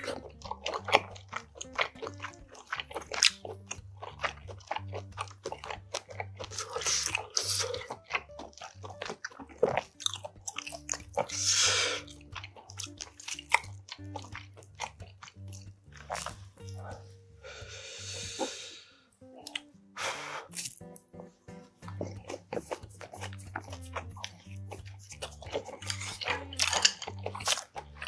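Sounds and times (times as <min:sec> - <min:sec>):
crisp crunching while chewing: 0:00.0 - 0:17.0, 0:20.5 - 0:21.1, 0:21.8 - 0:28.0.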